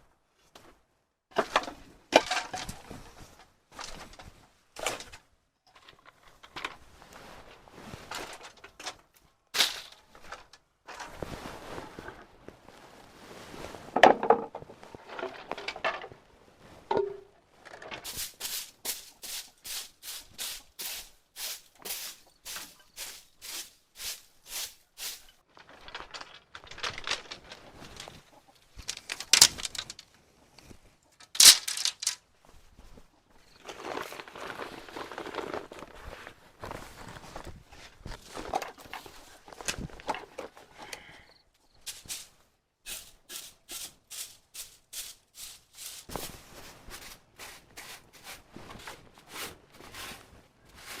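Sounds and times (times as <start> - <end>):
work noises: 25.1 - 30.2, 31.2 - 32.2.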